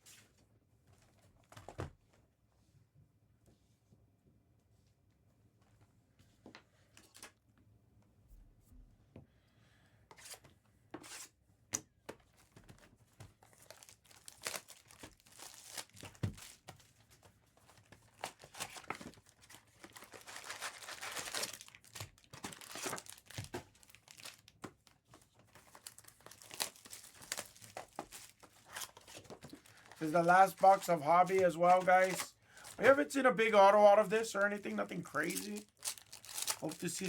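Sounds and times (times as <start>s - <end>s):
cards being handled: 12.2s - 37.0s
plastic wrappers tearing and crinkling: 13.5s - 16.8s, 17.8s - 24.7s, 25.4s - 37.0s.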